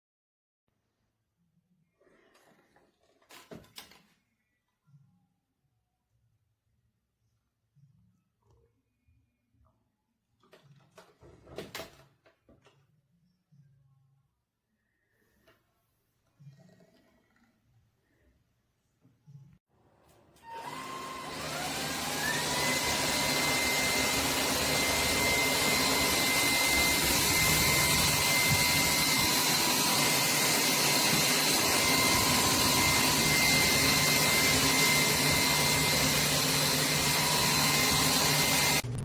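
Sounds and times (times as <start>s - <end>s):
vacuum cleaner motor whine: 20.4s - 39.0s.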